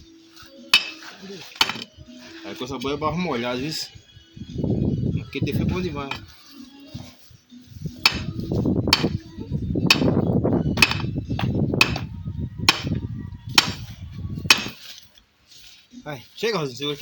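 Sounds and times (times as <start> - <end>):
hammer blows: 8.0 - 9.2, 9.9 - 10.2, 10.8 - 12.1, 12.7 - 14.8.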